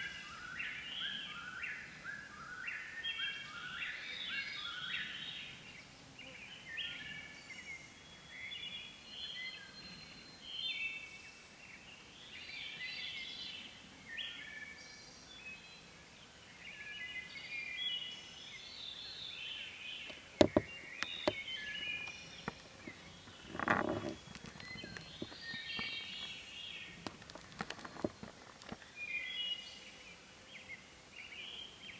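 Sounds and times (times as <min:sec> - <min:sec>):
songbirds singing: 0:00.0 - 0:31.9
sharp knocks: 0:20.4 - 0:21.4.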